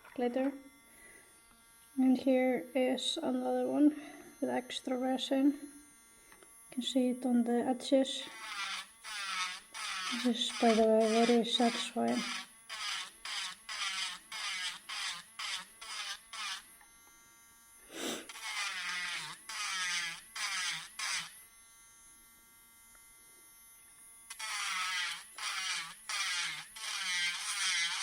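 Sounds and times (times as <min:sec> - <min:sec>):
nail drill grinding: 0:08.1 - 0:17.0, 0:17.8 - 0:21.4, 0:24.2 - 0:28.0
drill whining freely: 0:08.1 - 0:28.0.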